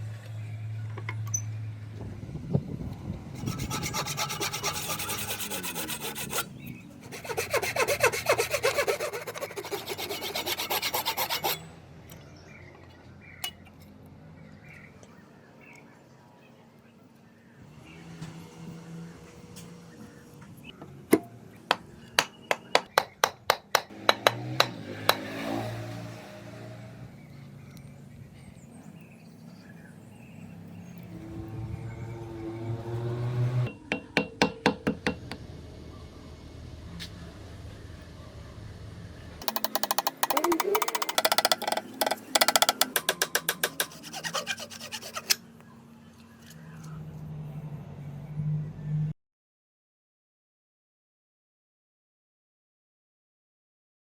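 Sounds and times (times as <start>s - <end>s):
rasping on wooden handle: 3.4s - 11.7s, 39.4s - 45.4s.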